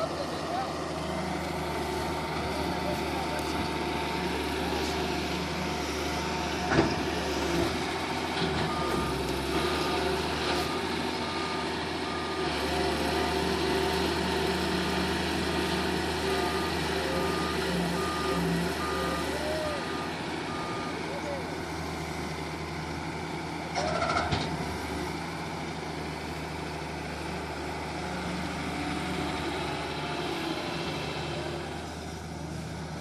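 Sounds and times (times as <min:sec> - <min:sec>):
diesel engine running: 0:00.0 - 0:33.0
reversing alarm beeping: 0:16.4 - 0:21.2.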